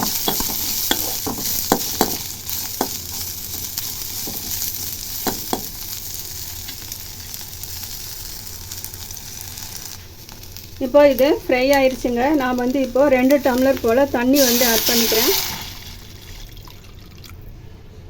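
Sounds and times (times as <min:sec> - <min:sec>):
vegetables sizzling in a pan: 0:00.0 - 0:16.6
spatula knocking against pan: 0:05.2 - 0:05.7.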